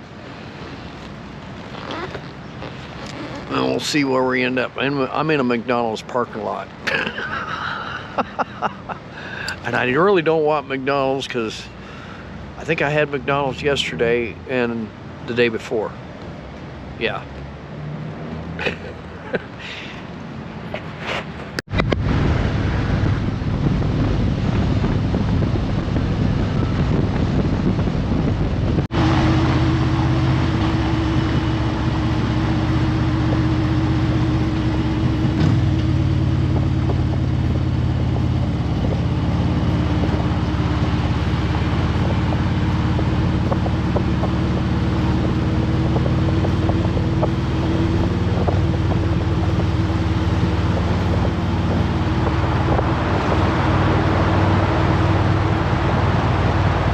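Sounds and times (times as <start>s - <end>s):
wind rush: 21.2s - 56.9s
motorcycle engine running: 21.7s - 56.9s.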